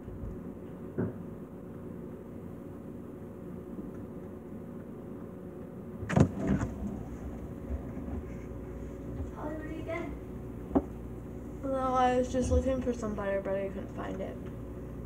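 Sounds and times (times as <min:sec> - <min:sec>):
refrigerator humming: 0:00.0 - 0:15.0
loud thump: 0:06.0 - 0:06.8.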